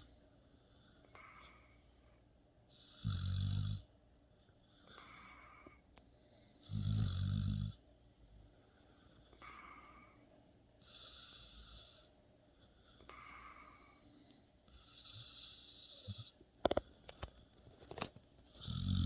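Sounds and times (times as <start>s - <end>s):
dog snoring: 2.7s - 3.9s, 6.6s - 7.8s, 10.8s - 12.1s, 14.7s - 16.8s, 18.5s - 19.0s.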